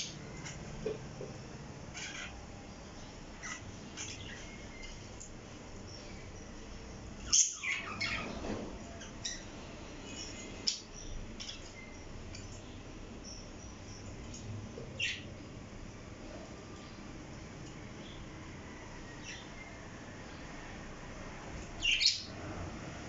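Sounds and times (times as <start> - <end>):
room noise hiss: 0.0 - 23.0
parrot chirps and squeaks: 1.9 - 2.4, 3.4 - 5.0, 7.2 - 9.5
faint high chirp: 2.0 - 15.4.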